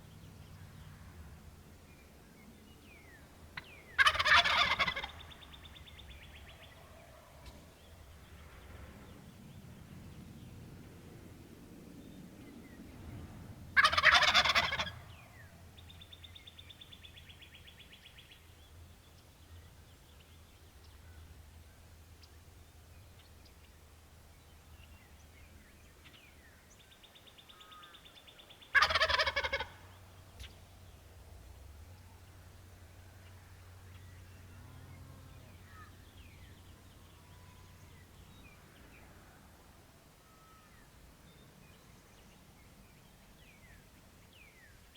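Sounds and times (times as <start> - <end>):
low steady rumble: 0.0 - 27.8, 29.6 - 44.7
turkey gobbling: 3.5 - 5.8, 13.8 - 15.4, 28.7 - 30.7.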